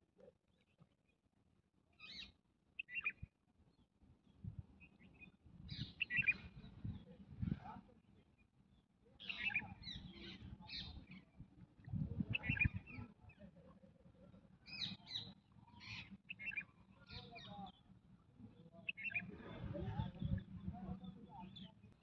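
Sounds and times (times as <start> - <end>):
bird calls: 2.0 - 3.2, 5.0 - 6.6, 9.2 - 11.2, 12.3 - 13.0, 18.9 - 19.4.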